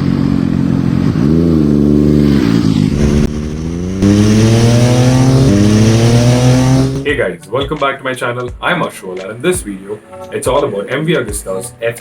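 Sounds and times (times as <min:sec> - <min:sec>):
motorcycle engine revving: 0:00.7 - 0:07.1.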